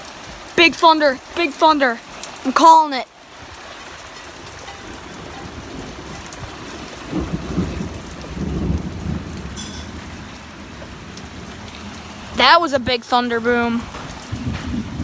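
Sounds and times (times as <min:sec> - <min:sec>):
heavy rain pouring: 0:00.0 - 0:15.0
thunder boom rumbling: 0:04.6 - 0:15.0.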